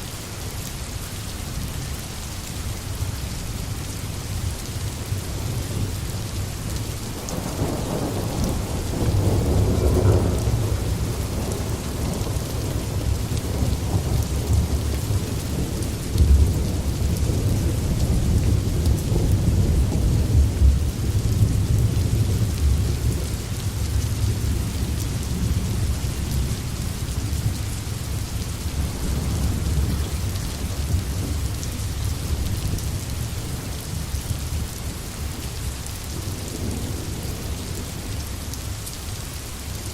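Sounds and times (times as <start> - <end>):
steady rain: 0.0 - 39.9
thunder rumbling: 7.2 - 27.6.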